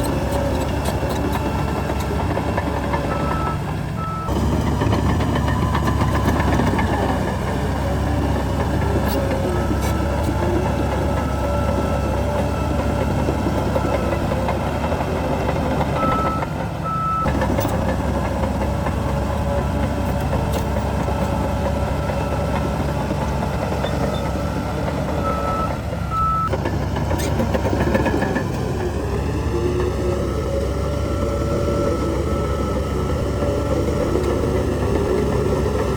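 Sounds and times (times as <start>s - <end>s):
diesel earthmoving machinery running: 0.0s - 35.9s
reversing alarm beeping: 3.1s - 4.4s, 15.9s - 17.4s, 25.2s - 26.6s.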